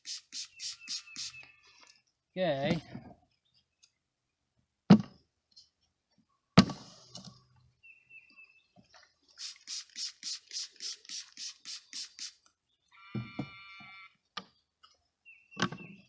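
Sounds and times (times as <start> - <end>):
scratchy pulsing rustle: 0.0 - 1.4.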